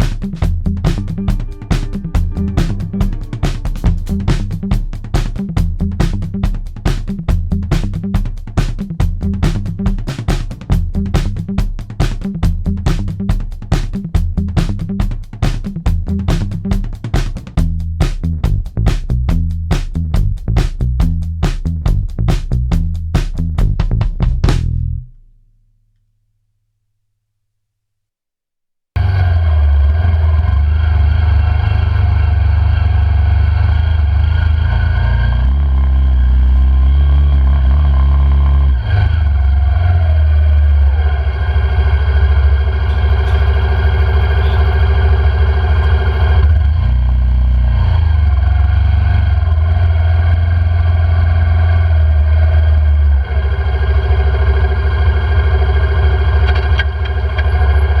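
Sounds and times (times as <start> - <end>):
quad bike engine running: 29.0 - 58.0.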